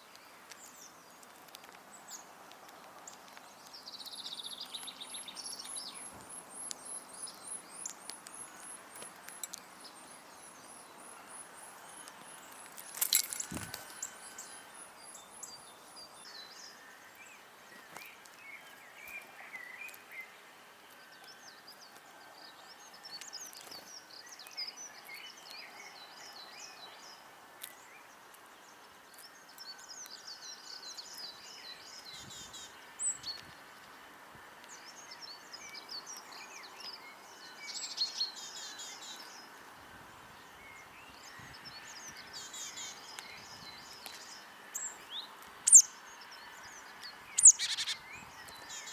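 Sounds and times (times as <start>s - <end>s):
songbirds singing and chirping: 0.0s - 48.9s
high trilled bird phrases: 47.4s - 48.0s.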